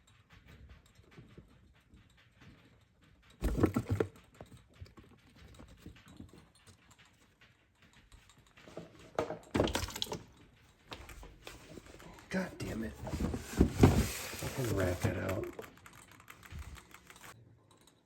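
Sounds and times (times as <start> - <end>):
knocking and clattering: 0.0 - 17.4
faint rustling and scratching: 10.3 - 17.4.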